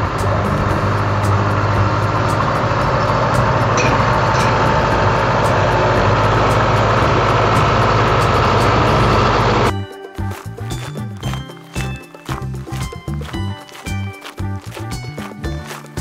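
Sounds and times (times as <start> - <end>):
tractor engine running: 0.0 - 9.9.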